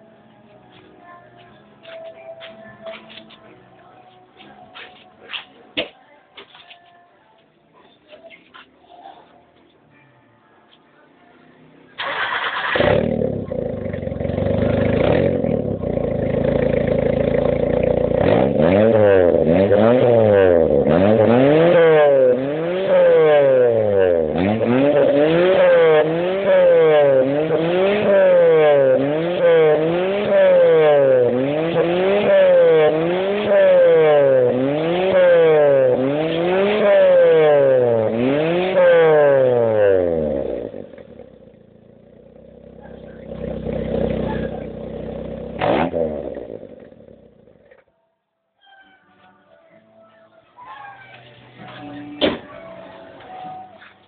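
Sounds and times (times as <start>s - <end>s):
car engine revving: 12.0s - 47.8s.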